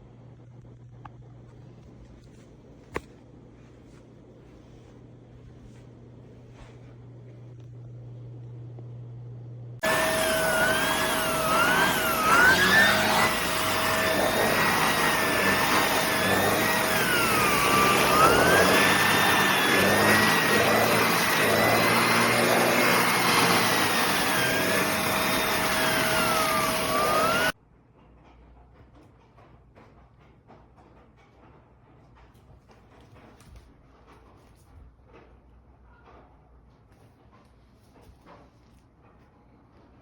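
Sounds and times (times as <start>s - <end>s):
vacuum cleaner running: 3.9s - 27.6s.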